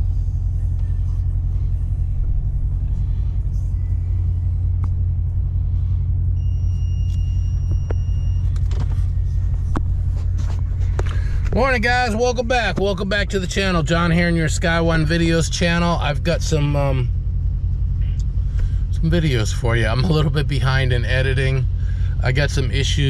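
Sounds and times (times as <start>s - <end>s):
car rumbling: 0.0s - 23.0s.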